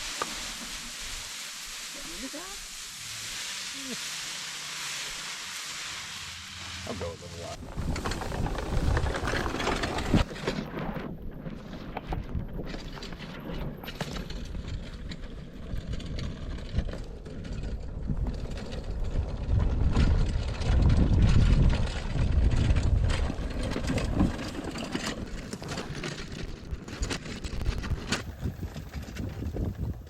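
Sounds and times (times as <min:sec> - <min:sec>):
clicks and rattles: 0:12.0 - 0:30.0
farm machinery engine running: 0:13.9 - 0:29.7.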